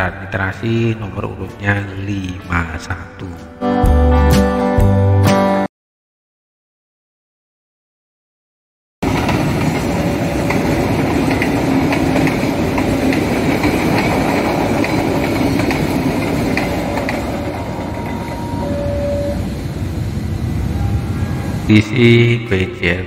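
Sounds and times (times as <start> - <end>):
wheels clicking over rail joints: 9.0 - 18.6
train wagons rolling past: 9.0 - 22.2.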